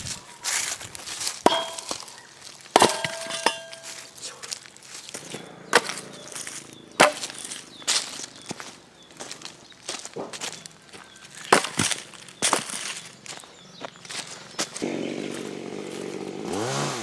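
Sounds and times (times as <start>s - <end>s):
firewood being chopped: 0.0s - 9.3s, 9.9s - 13.4s, 16.4s - 16.8s.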